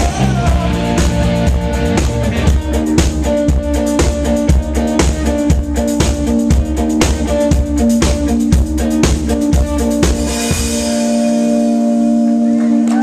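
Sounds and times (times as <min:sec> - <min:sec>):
drum kit beat: 0:00.0 - 0:13.0
guitar chords: 0:00.0 - 0:13.0.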